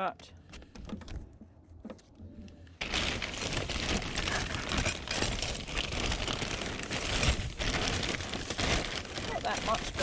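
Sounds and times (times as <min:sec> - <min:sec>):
plastic crinkling and rustling: 0:02.8 - 0:10.0.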